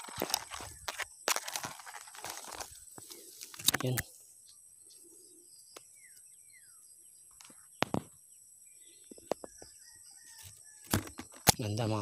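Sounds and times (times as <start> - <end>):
handling clicks and knocks: 10.9 - 11.6.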